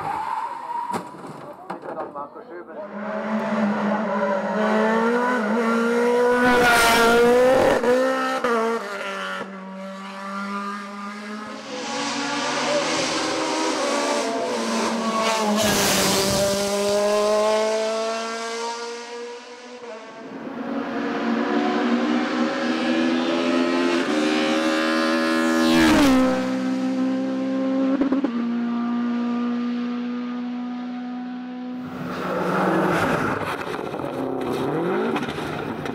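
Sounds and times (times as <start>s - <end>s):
racing car engine revving: 2.8s - 35.8s.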